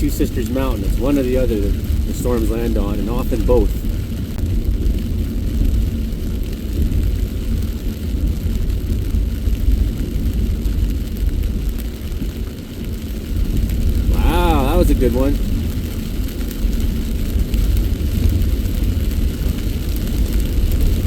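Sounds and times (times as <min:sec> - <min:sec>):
car interior driving rumble: 0:00.0 - 0:04.9, 0:13.5 - 0:16.9.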